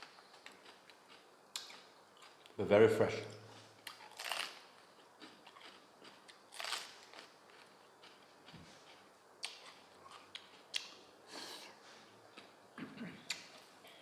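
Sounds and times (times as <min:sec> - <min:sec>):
chewing crunchy vegetable: 0:00.0 - 0:02.5, 0:03.8 - 0:10.9.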